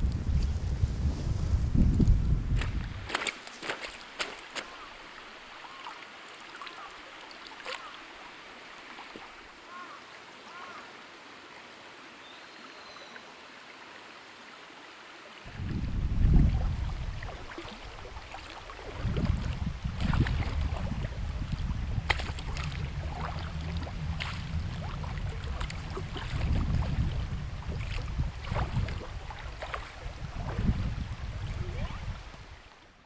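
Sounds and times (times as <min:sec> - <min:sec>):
wind rumble on microphone: 0:00.0 - 0:03.2, 0:15.5 - 0:32.6
water splashing around raft: 0:02.5 - 0:09.9, 0:15.5 - 0:33.0.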